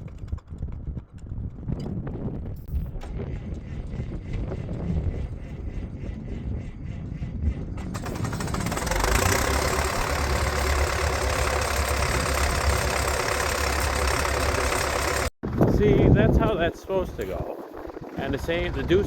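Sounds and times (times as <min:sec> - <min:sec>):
diesel engine starting and idling: 0:07.6 - 0:15.4.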